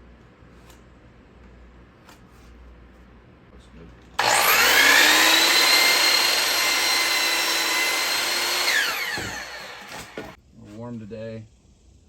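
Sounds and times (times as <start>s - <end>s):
power saw cutting wood: 4.2s - 10.4s.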